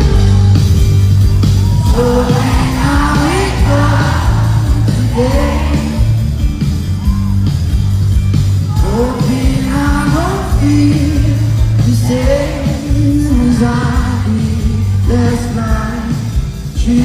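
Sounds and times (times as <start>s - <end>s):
band with steady bass line: 0.0s - 17.0s
man singing: 1.9s - 6.2s, 8.7s - 17.0s.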